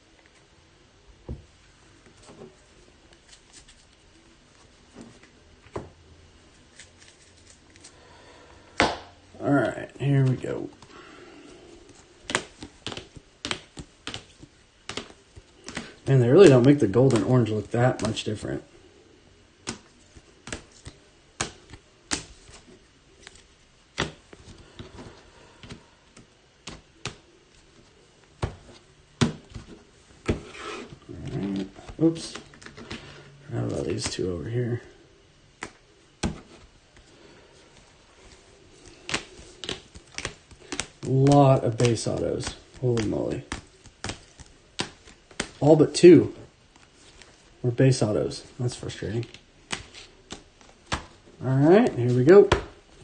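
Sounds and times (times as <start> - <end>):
cards tapping and sliding: 11.8 - 18.3, 19.6 - 34.3, 35.6 - 45.6, 49.2 - 52.9.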